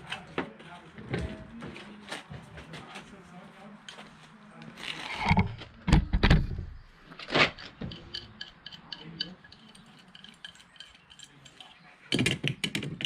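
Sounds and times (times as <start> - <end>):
light metallic clicks and clinks: 7.8 - 12.8.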